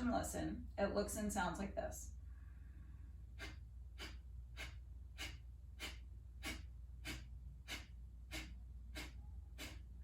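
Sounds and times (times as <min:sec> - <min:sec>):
sharp nasal exhales: 0:02.4 - 0:10.0.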